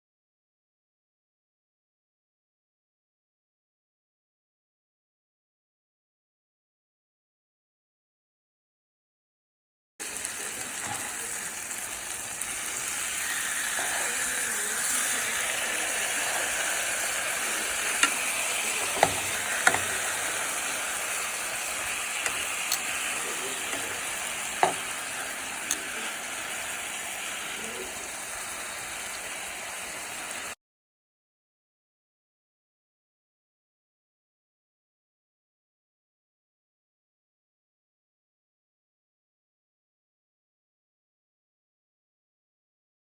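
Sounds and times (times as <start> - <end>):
food sizzling in a pan: 10.0 - 30.6
utensil clicking against pan: 16.4 - 20.9, 21.8 - 25.1.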